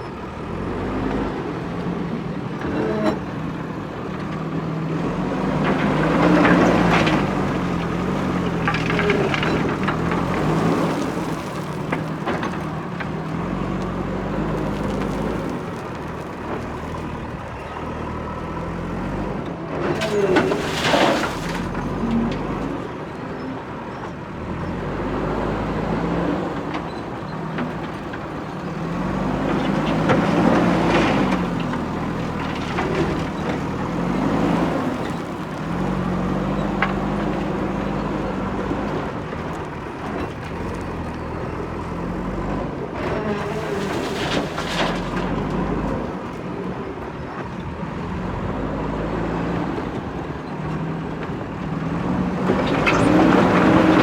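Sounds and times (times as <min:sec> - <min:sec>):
diesel engine revving: 0:47.8 - 0:54.0.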